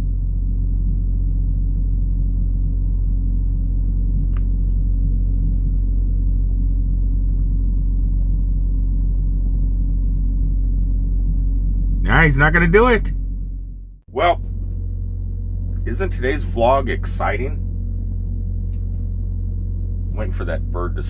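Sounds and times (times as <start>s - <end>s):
truck diesel engine idling: 11.2s - 21.0s.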